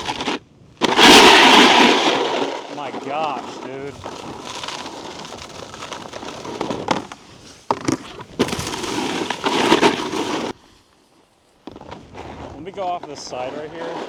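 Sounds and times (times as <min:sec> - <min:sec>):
snowboard scraping over icy snow: 0:00.0 - 0:10.9, 0:11.5 - 0:14.0.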